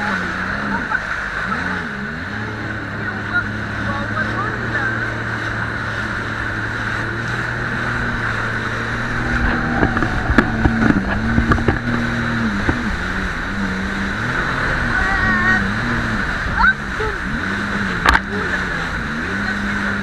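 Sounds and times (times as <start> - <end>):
jet ski engine running: 0.0 - 20.0
wind and water rushing: 0.0 - 20.0
sharp thumps: 5.4 - 14.5.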